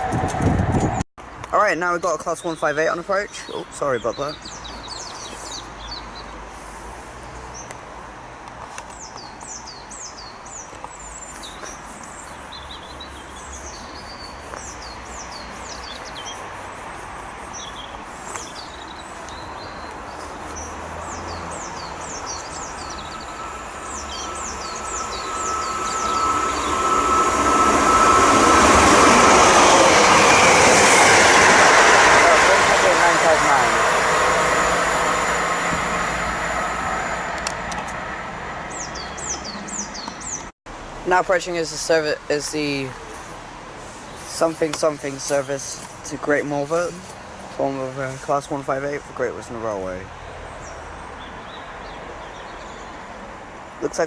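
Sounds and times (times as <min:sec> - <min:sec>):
diesel train approaching: 0:00.0 - 0:01.0, 0:16.6 - 0:49.9
small birds chirping: 0:01.8 - 0:06.4, 0:08.6 - 0:31.2, 0:38.7 - 0:40.5, 0:41.3 - 0:54.0
high steady ringing tone: 0:21.9 - 0:30.8.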